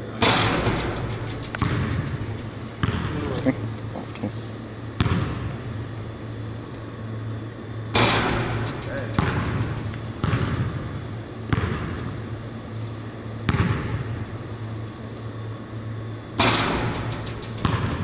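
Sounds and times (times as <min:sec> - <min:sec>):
steady low hum: 0:00.0 - 0:18.0
basketballs bouncing on gym floor: 0:00.3 - 0:04.0, 0:05.0 - 0:05.6, 0:08.0 - 0:12.2, 0:13.5 - 0:14.4, 0:16.4 - 0:18.0.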